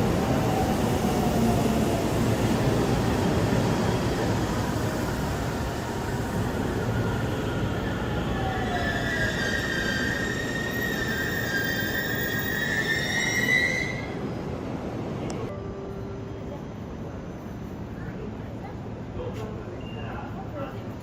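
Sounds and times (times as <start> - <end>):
train rumbling on rails: 0.0 - 21.0
train wheels squealing: 5.9 - 14.2, 19.8 - 20.3.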